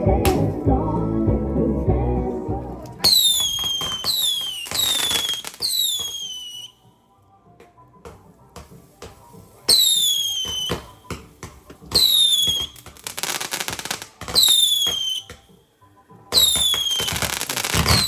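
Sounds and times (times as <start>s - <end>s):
firework crackling: 3.0s - 6.7s, 8.6s - 15.4s, 16.4s - 18.0s
firework falling whistle: 3.1s - 6.7s, 9.7s - 11.0s, 11.9s - 12.9s, 13.6s - 15.3s, 16.4s - 18.0s.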